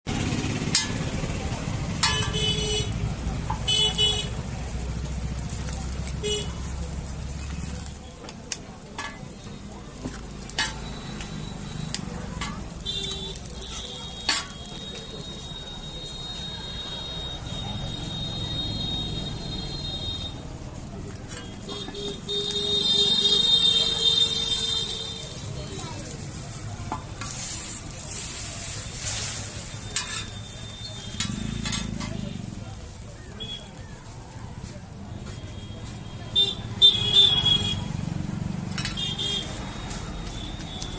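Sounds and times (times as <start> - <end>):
metal spatula striking pan: 0.6 - 1.3, 2.0 - 2.6, 9.0 - 9.5, 10.1 - 11.0, 11.9 - 12.8, 13.4 - 14.8, 29.9 - 32.2
egg sizzling on a griddle: 2.0 - 16.0, 22.3 - 34.3
sharp scrapes on griddle: 23.8 - 32.3.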